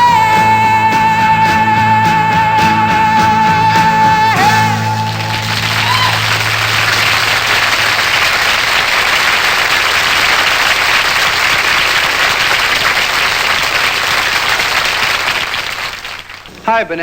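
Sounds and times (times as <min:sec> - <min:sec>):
audience applauding: 0:04.3 - 0:16.9.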